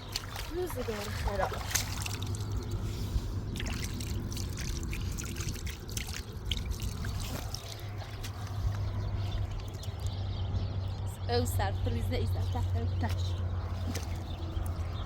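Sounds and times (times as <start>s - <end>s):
water trickling: 0.0s - 2.8s, 3.4s - 11.1s
splashes of washing clothes: 0.0s - 10.3s, 13.0s - 15.0s.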